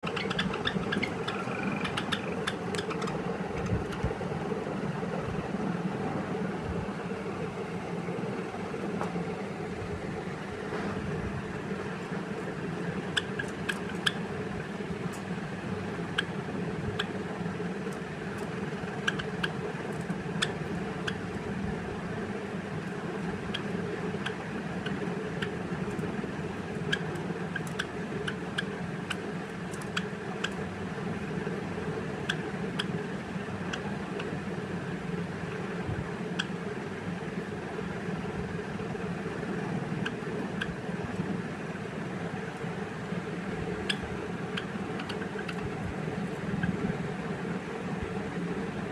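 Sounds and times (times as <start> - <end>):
sparrows chip calls: 0.0 - 3.2
steady low hum: 0.0 - 48.9.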